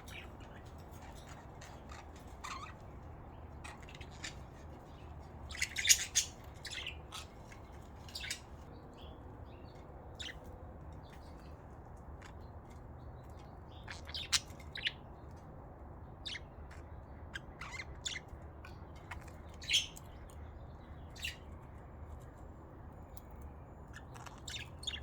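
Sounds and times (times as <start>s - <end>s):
budgerigars chirping: 0.0s - 2.9s, 3.6s - 8.5s, 13.8s - 15.0s, 17.3s - 18.3s, 23.9s - 25.0s.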